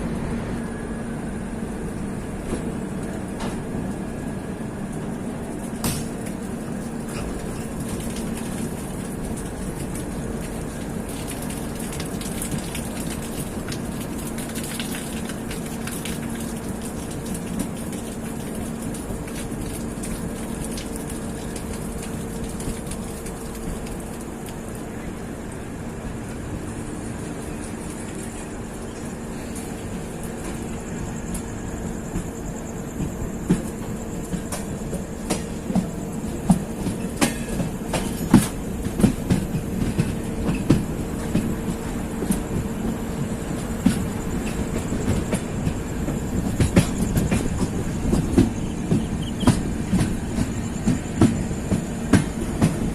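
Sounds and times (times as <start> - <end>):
train rumble and hum: 0.0 - 52.9
wheel clicks over rail joints: 5.7 - 24.2.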